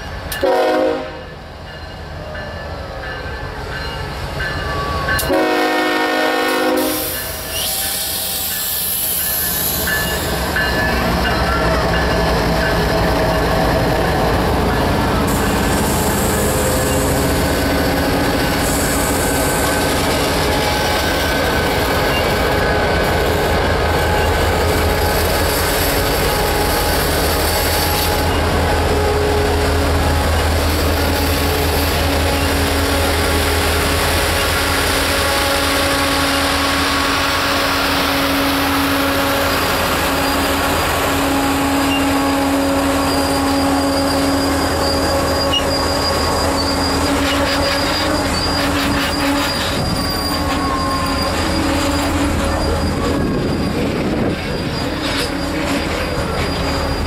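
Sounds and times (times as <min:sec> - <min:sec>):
train rail rumble: 0:00.0 - 0:57.0
train wheels squealing: 0:01.7 - 0:05.3, 0:06.8 - 0:57.0.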